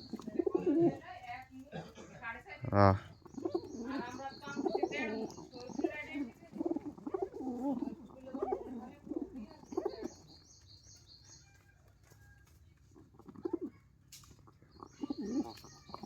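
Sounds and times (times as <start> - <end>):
pigeons cooing: 0.0 - 1.0, 3.0 - 10.5, 13.2 - 13.8, 14.6 - 16.0.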